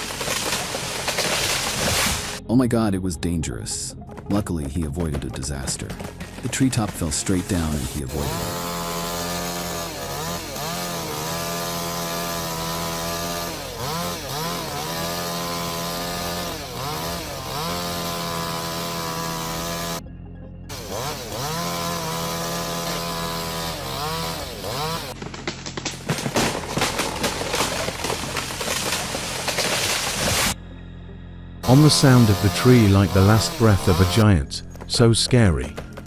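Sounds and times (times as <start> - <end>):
chainsaw cutting wood: 0.0 - 2.4, 5.1 - 20.0, 20.7 - 30.6, 31.6 - 34.3
wood cracking and crashing: 0.0 - 2.4, 5.0 - 20.0, 20.7 - 30.6.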